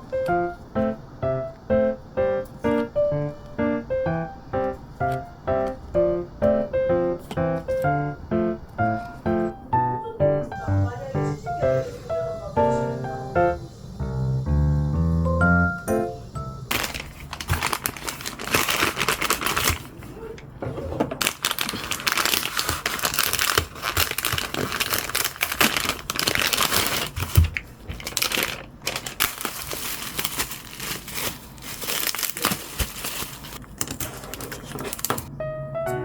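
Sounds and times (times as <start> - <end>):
plastic packaging crinkling: 16.6 - 20.3, 21.2 - 35.3.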